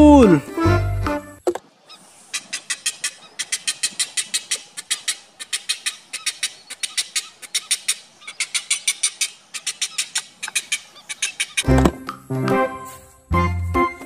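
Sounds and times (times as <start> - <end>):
bird chattering raspy calls: 1.7 - 11.7.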